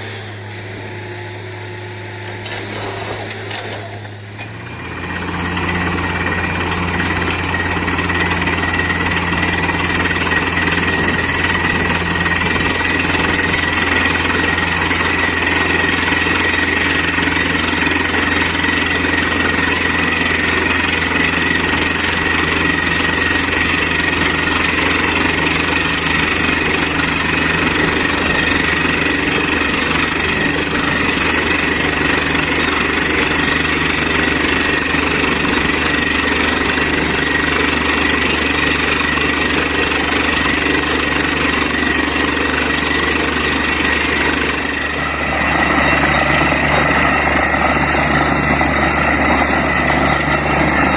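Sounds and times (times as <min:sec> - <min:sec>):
drilling rig engine drone: 0:00.0 - 0:50.9
steady high whine: 0:21.6 - 0:50.9.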